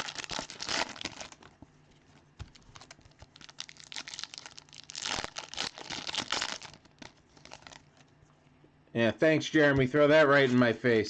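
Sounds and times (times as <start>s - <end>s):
wrappers tearing and crinkling: 0.0s - 1.5s, 2.5s - 8.0s.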